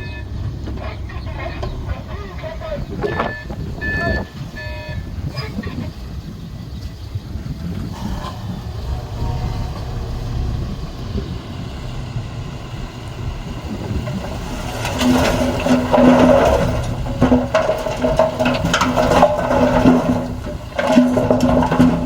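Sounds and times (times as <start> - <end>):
metal clanks: 0.0 - 4.4, 7.9 - 22.0
heavy diesel machinery rumbling: 0.0 - 22.0
pulsing hum: 7.7 - 22.0.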